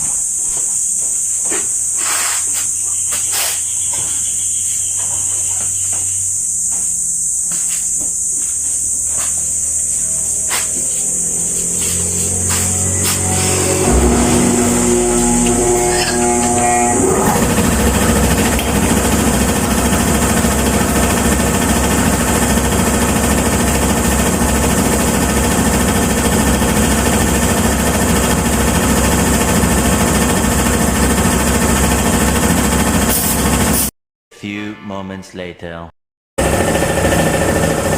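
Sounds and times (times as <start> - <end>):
machine motor pulsing: 9.6 - 33.6.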